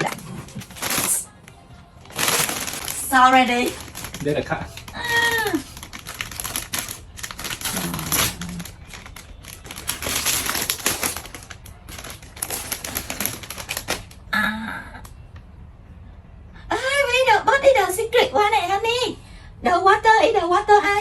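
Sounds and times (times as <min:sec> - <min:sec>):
packaging crinkling and rustling: 0:00.0 - 0:14.3.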